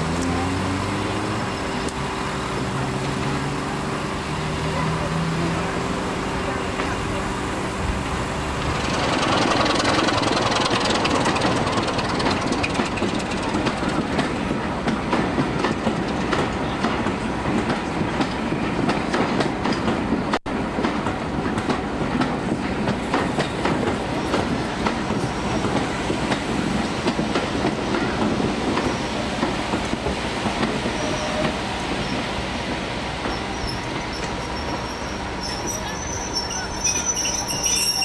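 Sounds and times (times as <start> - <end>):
train wheels clicking over rail joints: 8.0 - 38.0.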